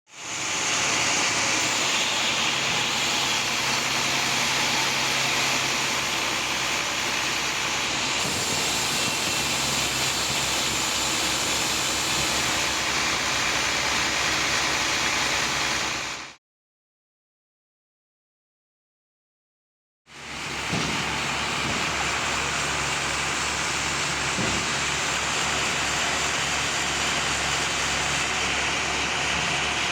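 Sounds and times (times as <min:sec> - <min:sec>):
sawmill machinery running: 0:00.1 - 0:16.4, 0:20.1 - 0:29.9.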